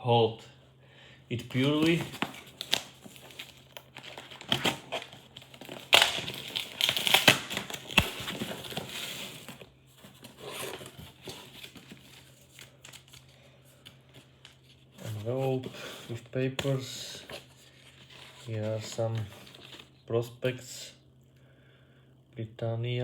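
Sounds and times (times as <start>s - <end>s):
paper and packaging crinkling: 1.3s - 16.0s, 16.7s - 20.0s.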